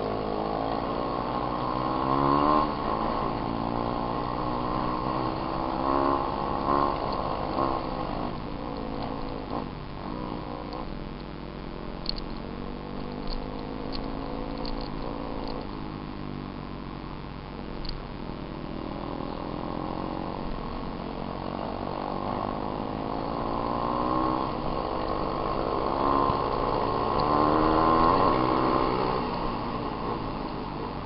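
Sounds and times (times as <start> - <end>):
dirt bike engine revving: 0.0 - 11.0, 18.0 - 31.0.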